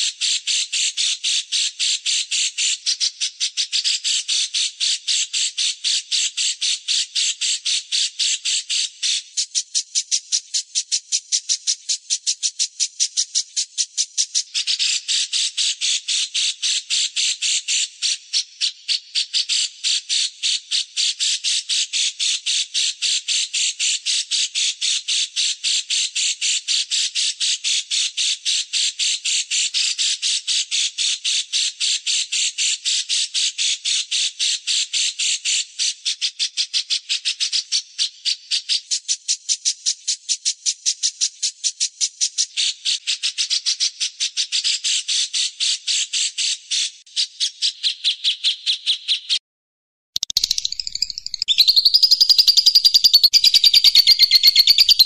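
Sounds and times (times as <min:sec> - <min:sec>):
bird rasping chatter: 0:50.2 - 0:55.0.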